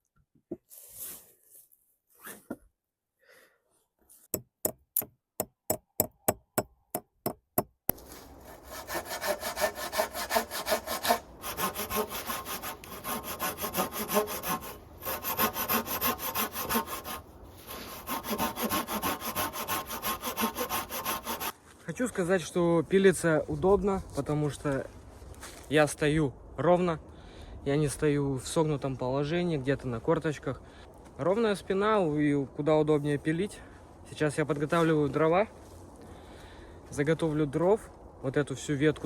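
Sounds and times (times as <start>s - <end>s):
hand saw cutting wood: 7.9s - 21.6s.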